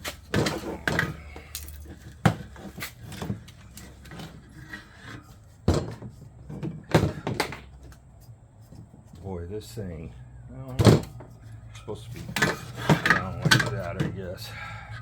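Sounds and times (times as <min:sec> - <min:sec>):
bicycle wheel knocks and clunks: 0:00.0 - 0:08.0, 0:10.7 - 0:11.4, 0:12.2 - 0:14.4.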